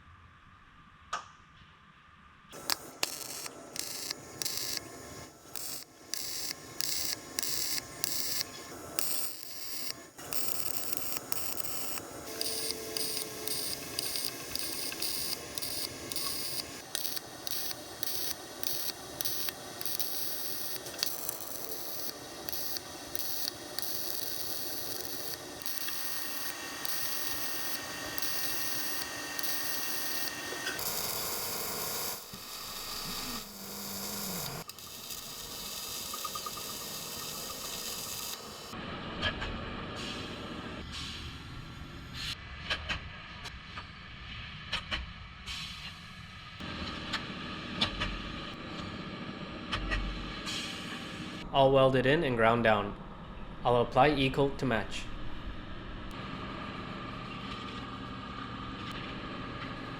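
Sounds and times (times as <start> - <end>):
welding crackling bursts: 2.6 - 38.8.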